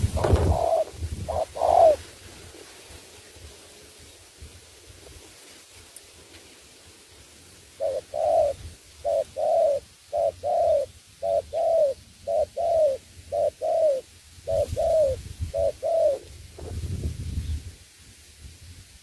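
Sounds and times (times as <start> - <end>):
dove cooing: 0.0 - 2.1, 7.8 - 16.3.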